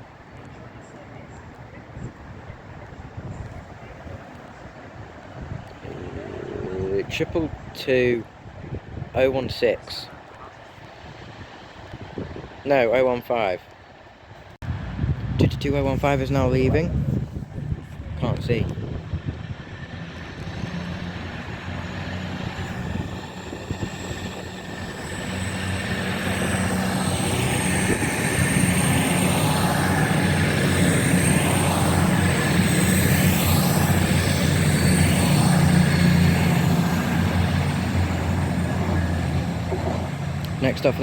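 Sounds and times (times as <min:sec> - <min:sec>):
diesel train engines droning: 0:14.0 - 0:41.0
thin high whine: 0:22.6 - 0:40.4.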